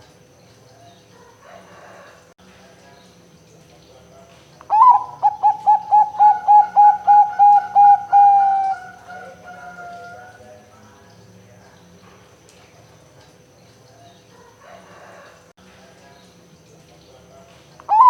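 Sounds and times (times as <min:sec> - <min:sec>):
dove cooing: 0:04.7 - 0:10.4.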